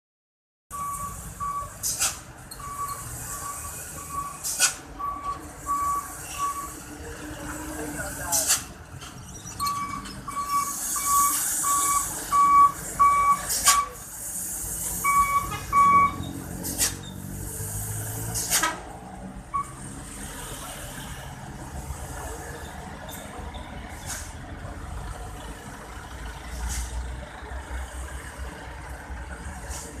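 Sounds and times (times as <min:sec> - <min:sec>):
electronic warning beep: 0:00.7 - 0:01.8, 0:02.5 - 0:04.4, 0:05.0 - 0:06.8, 0:09.6 - 0:14.0, 0:15.0 - 0:16.4, 0:19.5 - 0:19.8
truck engine rumbling: 0:00.7 - 0:30.0
air brake hisses: 0:03.5 - 0:04.8, 0:16.6 - 0:18.8, 0:26.6 - 0:27.0, 0:29.6 - 0:30.0.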